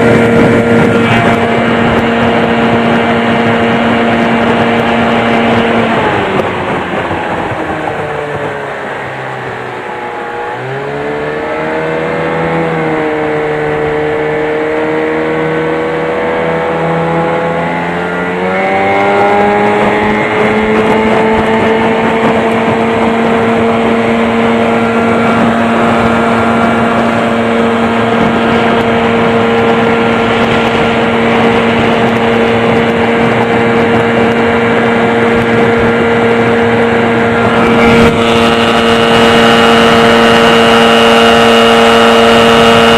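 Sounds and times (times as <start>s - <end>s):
outboard motor at high revs: 0.0s - 42.9s.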